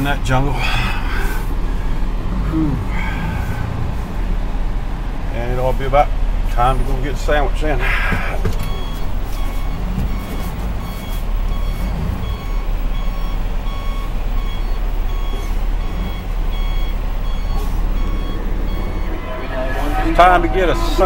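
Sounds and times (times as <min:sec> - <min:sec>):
diesel engine rumble: 0:00.0 - 0:21.0
truck reverse alarm beeping: 0:06.6 - 0:21.0.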